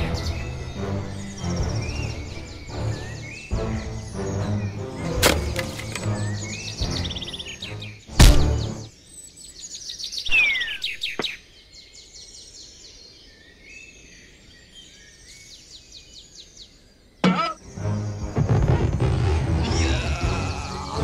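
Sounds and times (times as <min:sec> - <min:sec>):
small birds chirping: 0:00.0 - 0:18.5
loud thump: 0:08.2 - 0:08.7.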